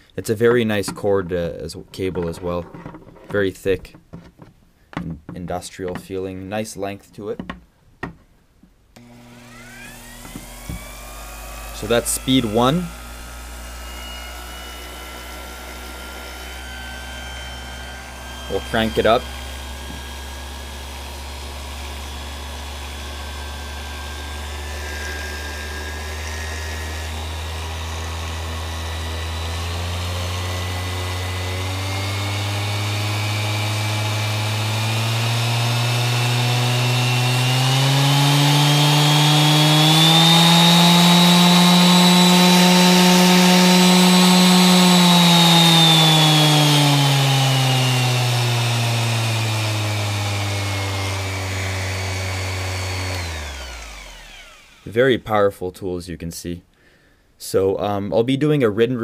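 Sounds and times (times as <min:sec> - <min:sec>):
orbit sander motor whine: 0:09.0 - 0:55.2.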